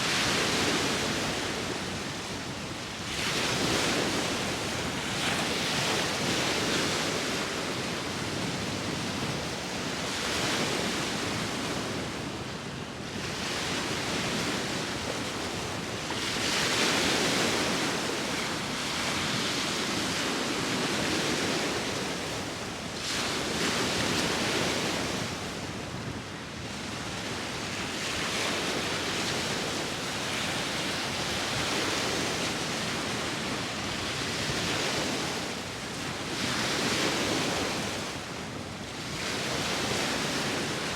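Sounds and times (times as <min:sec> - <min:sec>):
sea waves breaking on shore: 0:00.0 - 0:40.9.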